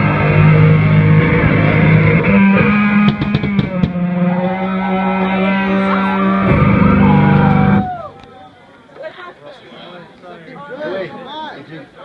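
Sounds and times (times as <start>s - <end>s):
live band playing noise rock: 0.0s - 8.0s
low guitar drone: 0.0s - 8.4s
sharp hits: 0.0s - 8.4s
sliding high tones: 0.0s - 8.5s.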